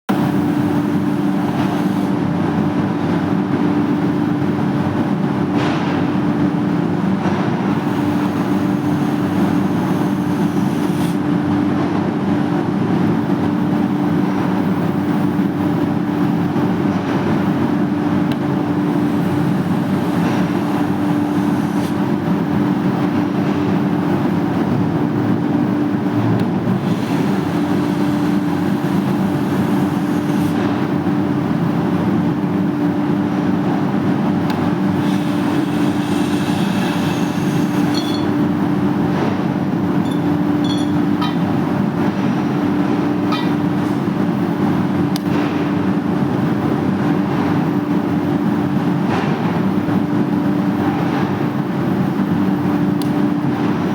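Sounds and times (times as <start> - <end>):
machine motor humming: 26.4 - 45.3.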